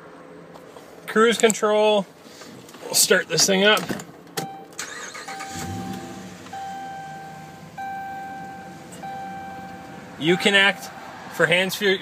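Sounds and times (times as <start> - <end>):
dashboard warning chime: 4.4 - 11.0
engine starting and idling: 4.8 - 8.0.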